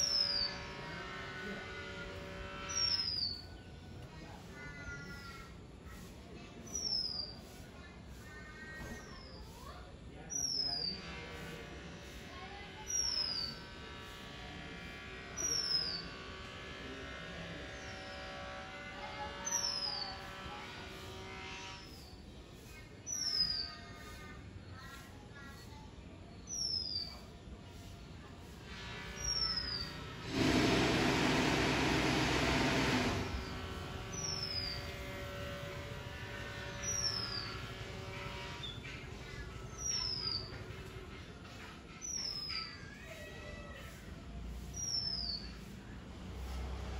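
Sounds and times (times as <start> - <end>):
steady buzzing drone: 0.0 - 8.4, 10.0 - 23.1, 27.5 - 42.4, 44.0 - 46.9
steady hum with held tones: 10.9 - 23.0, 32.8 - 41.4.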